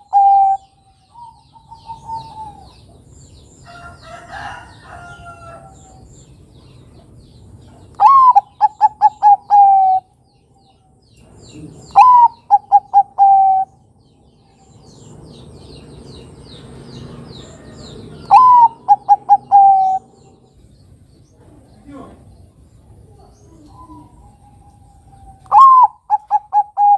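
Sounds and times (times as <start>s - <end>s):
dove cooing: 0.0s - 3.1s, 8.0s - 10.1s, 11.5s - 13.8s, 17.5s - 20.5s, 23.0s - 26.9s
small birds chirping faintly: 0.0s - 26.9s.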